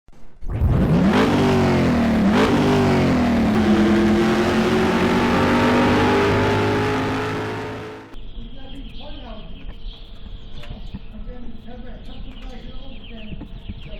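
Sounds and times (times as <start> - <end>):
car engine accelerating hard: 0.5 - 8.2.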